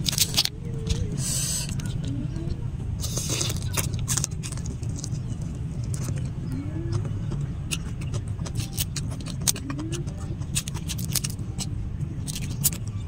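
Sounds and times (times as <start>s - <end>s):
steady low rumble: 0.0s - 13.0s
shrimp shell pulled apart: 3.0s - 4.7s
chewing crunchy food: 3.0s - 12.9s.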